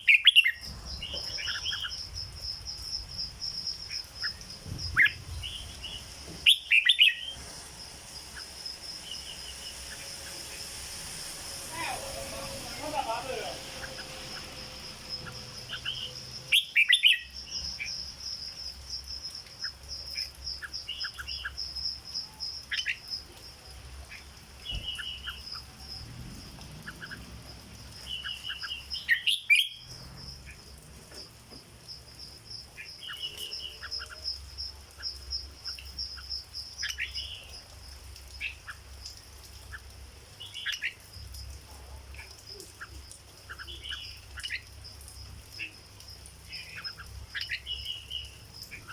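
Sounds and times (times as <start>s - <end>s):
bird singing whistled phrases: 6.5s - 7.3s.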